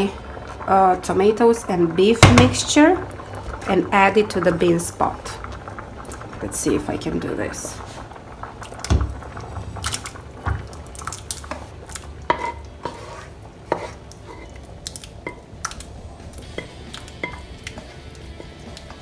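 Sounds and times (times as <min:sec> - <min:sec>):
cookware scraping: 0:12.3 - 0:15.5, 0:16.2 - 0:19.0
utensil knocking metal pots: 0:16.4 - 0:19.0.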